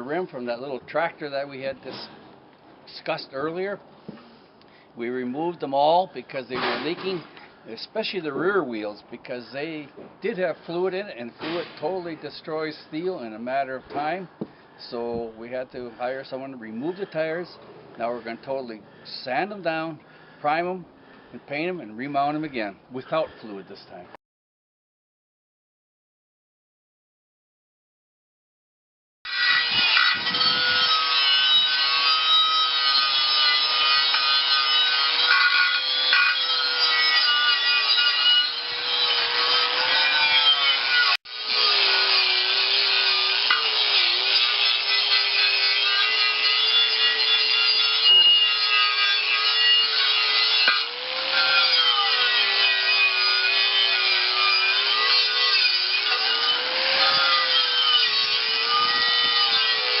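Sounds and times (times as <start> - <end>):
wire brush scraping metal: 29.4 - 41.1.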